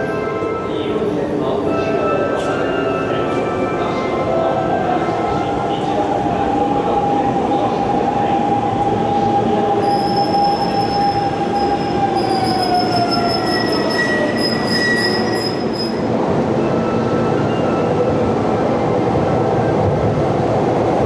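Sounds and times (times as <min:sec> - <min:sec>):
train wheel squeal: 0:09.8 - 0:18.0.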